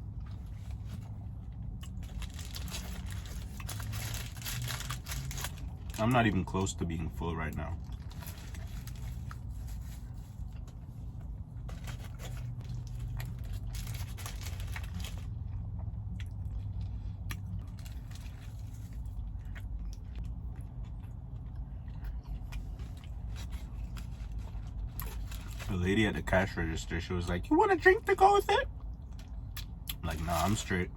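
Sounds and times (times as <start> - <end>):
steady low hum: 0.0 - 30.9
person chewing: 15.0 - 25.5.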